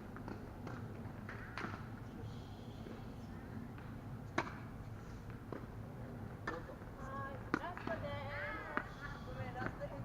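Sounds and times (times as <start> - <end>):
low background noise: 0.0 - 10.0
racket striking tennis ball: 3.8 - 4.7.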